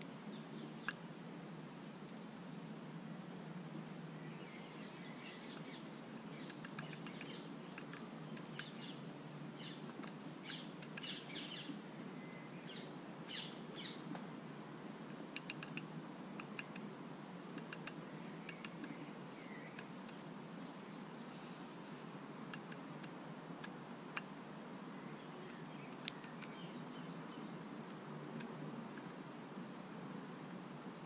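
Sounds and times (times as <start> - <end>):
birds chirping: 0.2 - 1.0, 4.2 - 14.2, 17.6 - 23.4, 24.8 - 29.4
sharp ticks: 5.5 - 8.8, 15.1 - 16.9, 17.6 - 19.0, 22.5 - 24.3, 25.5 - 26.6.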